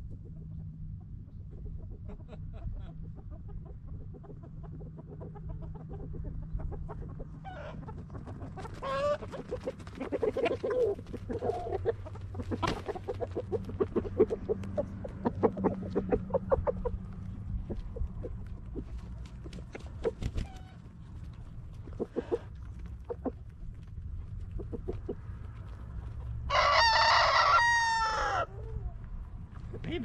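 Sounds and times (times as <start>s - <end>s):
steady low hum: 0.0s - 26.5s
chickens clucking: 0.0s - 30.0s
chicken trilling call: 7.4s - 7.9s, 8.6s - 17.0s, 26.5s - 29.0s.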